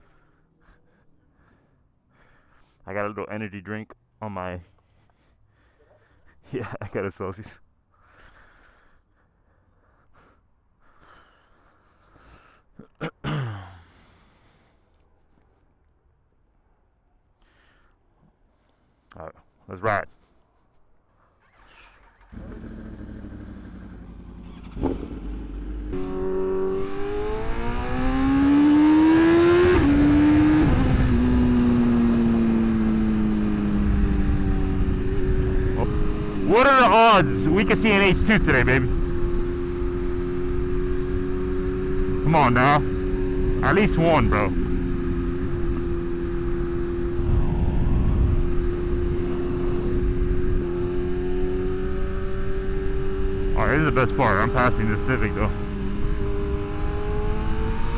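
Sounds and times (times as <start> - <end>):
motorcycle engine revving: 21.4 - 57.9
wind and road rumble: 22.3 - 57.9
wind rush: 47.1 - 50.1.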